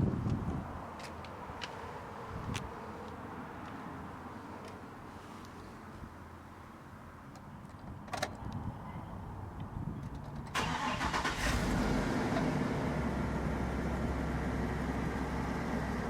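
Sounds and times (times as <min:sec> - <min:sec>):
truck engine starting and idling: 0:10.3 - 0:16.0.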